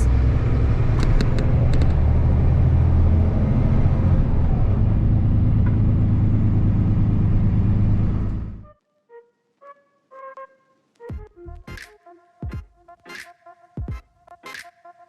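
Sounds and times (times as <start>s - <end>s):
road noise: 0.0s - 8.6s
truck engine drone: 0.0s - 8.7s.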